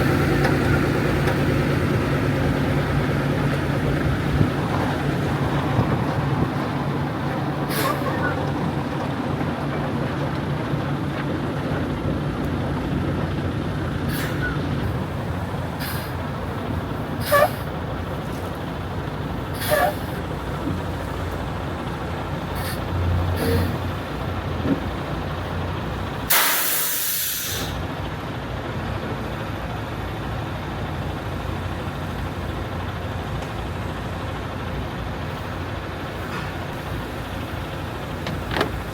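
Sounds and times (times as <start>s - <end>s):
truck diesel engine running: 0.0s - 38.9s
air brake hiss: 7.7s - 8.4s, 14.1s - 14.6s, 15.8s - 16.2s, 17.2s - 17.7s, 19.6s - 20.2s, 22.6s - 23.8s, 26.3s - 27.8s
short squeaks and clicks: 17.2s - 17.7s, 23.4s - 23.8s.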